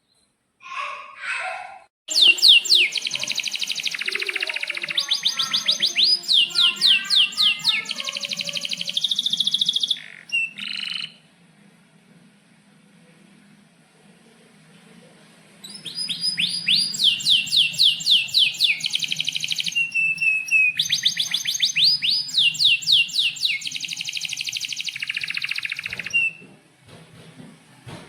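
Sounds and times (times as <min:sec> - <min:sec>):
canary singing: 0:02.1 - 0:11.2, 0:15.6 - 0:26.4
faint low hum: 0:02.1 - 0:28.0.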